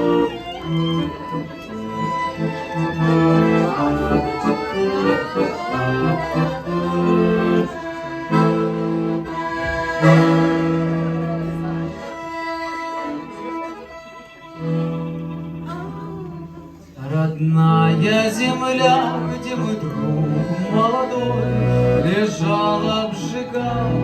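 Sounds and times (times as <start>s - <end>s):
slow instrumental music: 0.0s - 17.0s.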